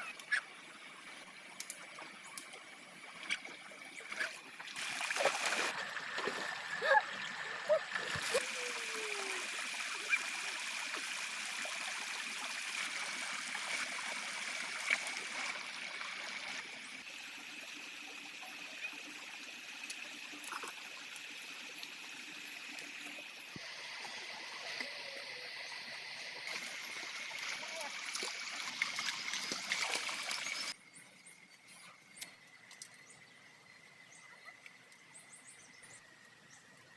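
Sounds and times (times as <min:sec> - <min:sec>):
water trickling: 0:00.7 - 0:25.4, 0:26.2 - 0:30.8.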